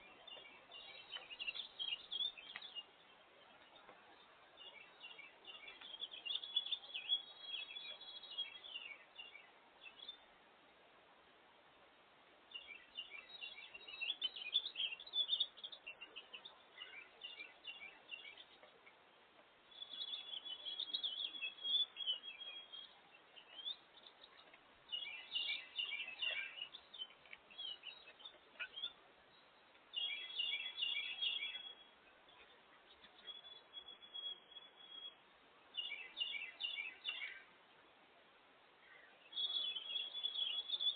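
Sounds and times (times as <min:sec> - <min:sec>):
faint outdoor hiss: 0:00.0 - 0:40.9
songbirds chirping: 0:00.0 - 0:40.9.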